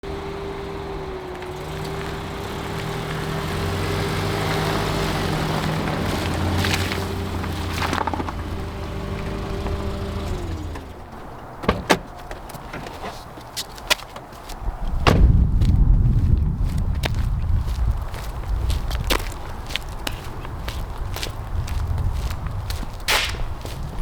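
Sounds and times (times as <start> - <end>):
car engine running: 0.0 - 11.6.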